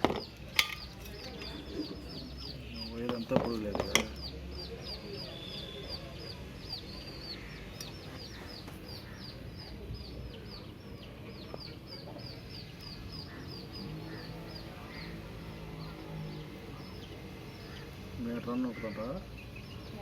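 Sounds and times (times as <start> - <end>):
bird chirping: 0.0 - 20.0.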